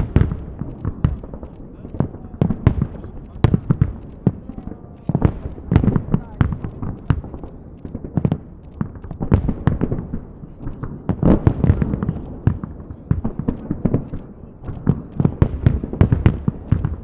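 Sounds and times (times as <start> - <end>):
crowd voices: 0.0 - 17.0
fireworks bangs and crackles: 0.0 - 17.0.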